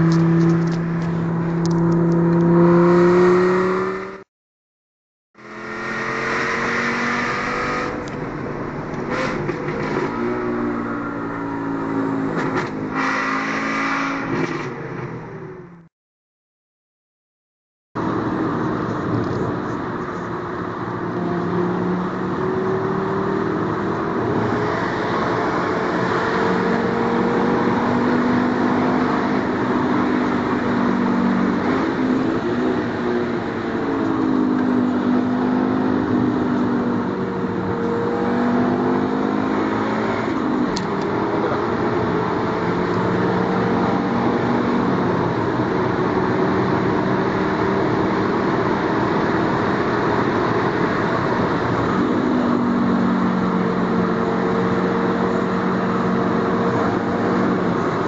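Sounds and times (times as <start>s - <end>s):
car engine accelerating: 0.0s - 4.2s, 18.0s - 58.0s.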